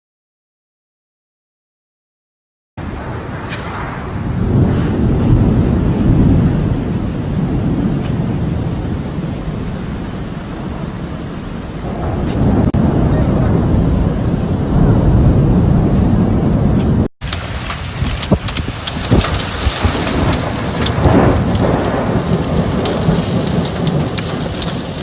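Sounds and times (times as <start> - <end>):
deep thunder rumble: 2.8 - 25.0
rain falling: 4.3 - 15.4, 17.2 - 25.0.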